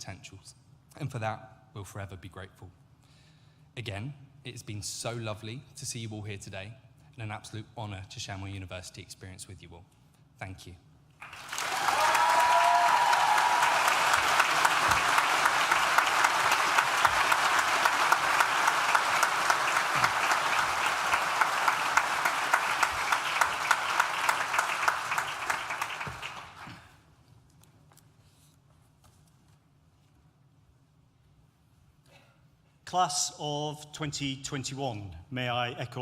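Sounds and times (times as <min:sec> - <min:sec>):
audience applause: 0:11.2 - 0:26.9.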